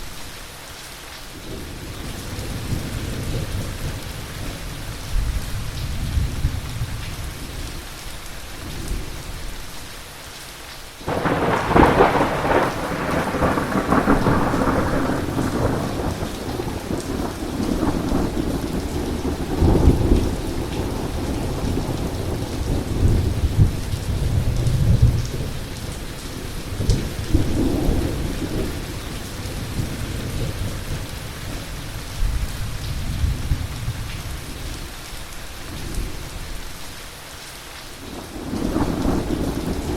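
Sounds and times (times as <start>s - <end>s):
steady rain: 0.0s - 39.9s
thunderclap: 11.1s - 25.6s
thunder rumbling: 11.1s - 34.5s, 38.1s - 39.9s.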